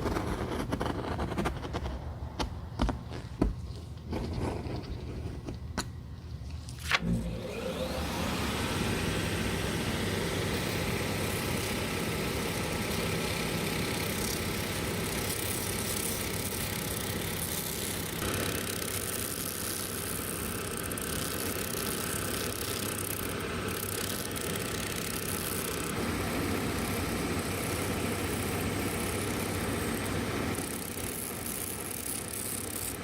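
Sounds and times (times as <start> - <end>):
electric motor whine: 6.8 - 33.0.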